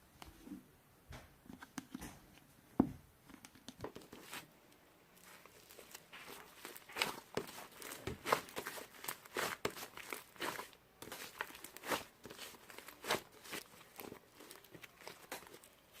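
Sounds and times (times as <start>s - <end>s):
slime crackling and popping: 5.2s - 16.0s.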